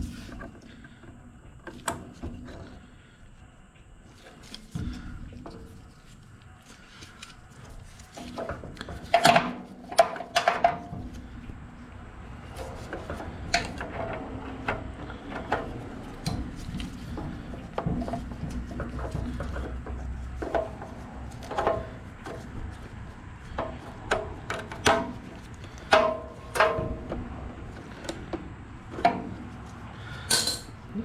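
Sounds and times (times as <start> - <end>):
tools and engine parts clicking: 7.2 - 11.6, 12.3 - 30.8.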